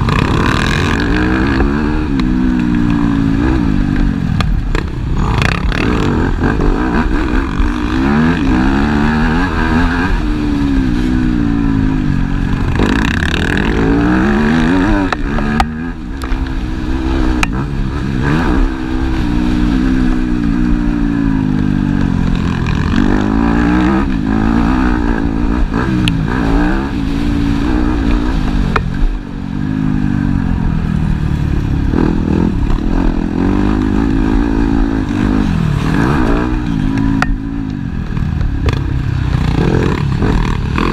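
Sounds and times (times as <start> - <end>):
motocross engines revving: 0.0 - 40.9.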